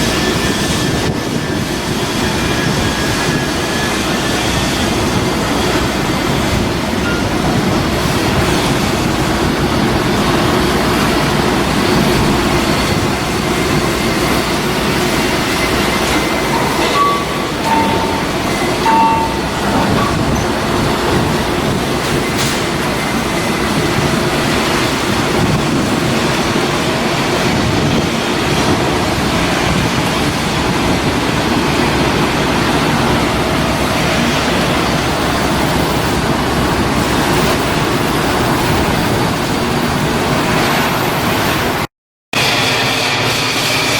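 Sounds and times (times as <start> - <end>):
loud machinery noise: 0.0 - 43.9.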